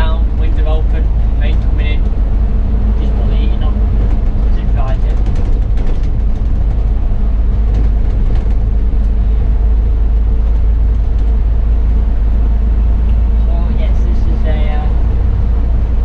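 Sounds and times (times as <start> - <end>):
faint rattles: 0.0 - 12.2
bus engine droning: 0.0 - 16.0
road noise: 0.0 - 16.0.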